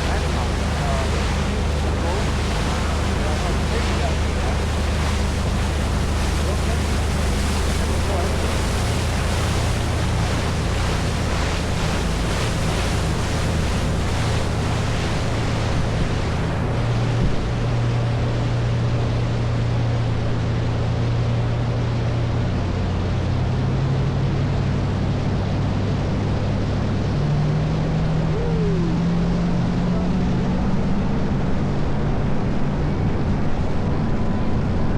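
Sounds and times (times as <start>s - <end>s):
wind on microphone: 0.0s - 20.9s
boat engine humming: 0.0s - 34.9s
water rushing along hull: 0.0s - 34.9s.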